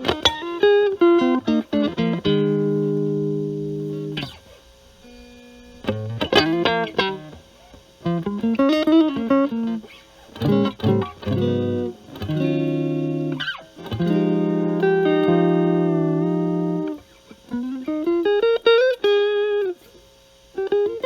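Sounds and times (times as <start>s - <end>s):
overdriven electric guitar: 0.0s - 21.0s.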